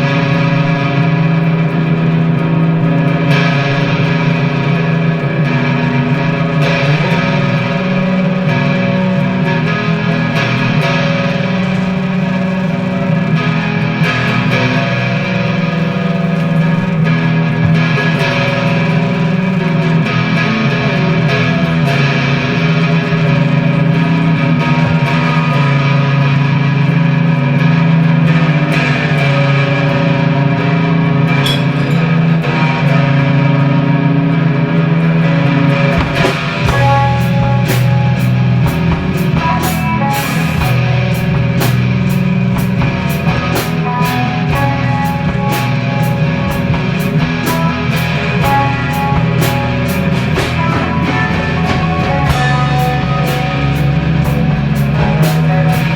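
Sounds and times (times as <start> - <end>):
distorted electric guitar chords: 0.0 - 55.9
low held bass notes: 0.0 - 55.9
sharp cymbal hits: 35.5 - 55.9.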